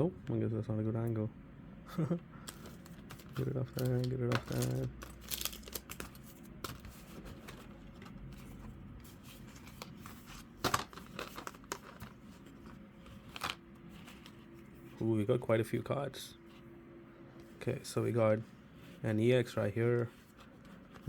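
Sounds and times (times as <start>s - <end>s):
cards and wrappers rustling: 2.4s - 15.0s.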